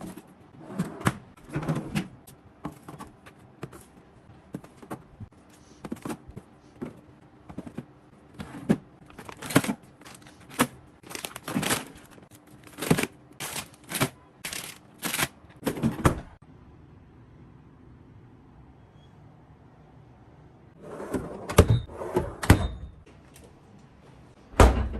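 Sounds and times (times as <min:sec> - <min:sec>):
packaging handled with clacks: 0:09.1 - 0:15.4.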